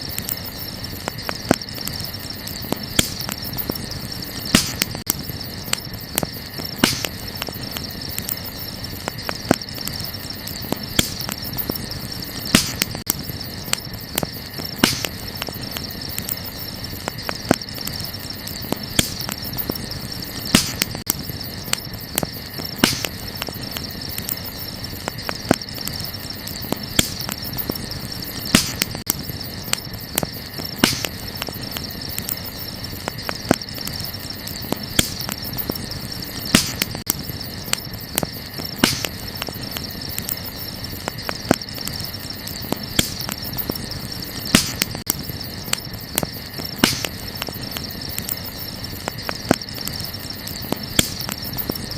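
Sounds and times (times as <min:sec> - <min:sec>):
campfire crackling and popping: 0:00.0 - 0:51.9
night insects chirring: 0:00.0 - 0:51.9.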